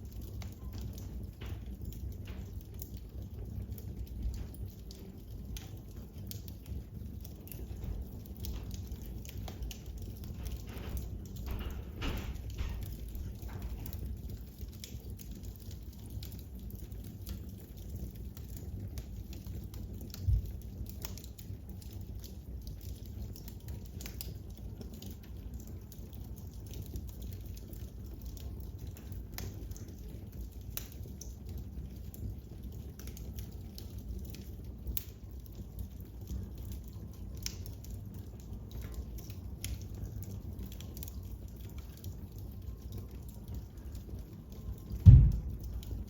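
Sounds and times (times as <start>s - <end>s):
wood fire crackling: 0.0s - 46.0s
dull low thump: 45.0s - 45.7s
low rumble: 45.0s - 45.8s.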